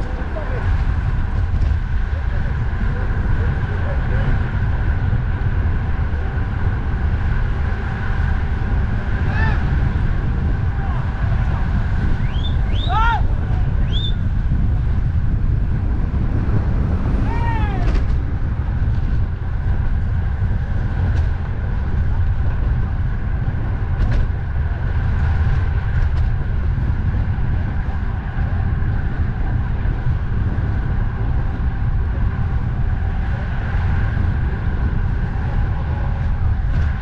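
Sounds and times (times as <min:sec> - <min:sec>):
road and traffic noise: 0:00.0 - 0:37.0
wind rumbling on microphone: 0:00.0 - 0:37.0.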